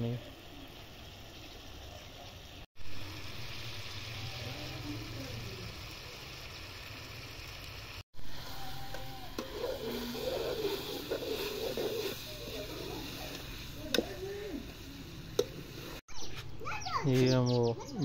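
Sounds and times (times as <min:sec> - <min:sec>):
pumpkin sizzling in oil: 0:00.0 - 0:16.1.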